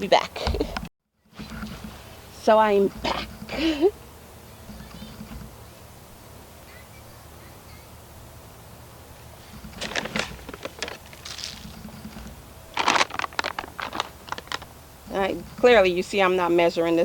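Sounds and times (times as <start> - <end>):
bag crinkling and rustling: 9.6 - 14.7.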